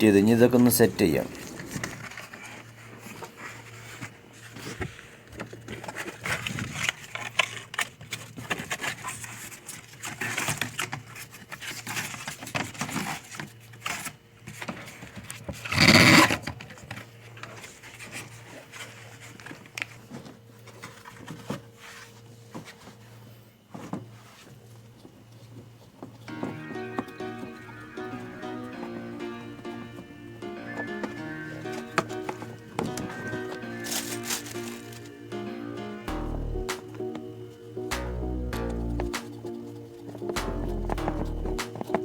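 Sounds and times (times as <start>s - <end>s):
harsh noise: 26.5s - 37.1s, 37.9s - 39.5s, 40.4s - 41.9s.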